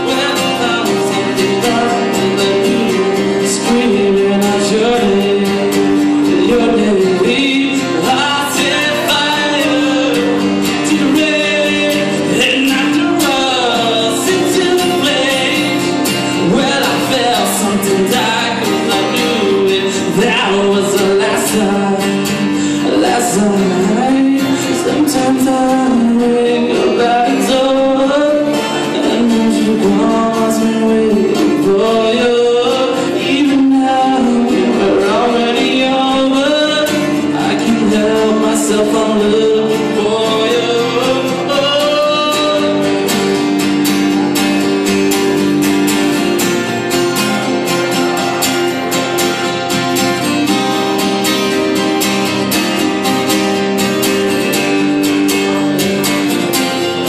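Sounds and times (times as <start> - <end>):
acoustic guitar strumming: 0.0 - 57.0
person singing: 0.0 - 57.0.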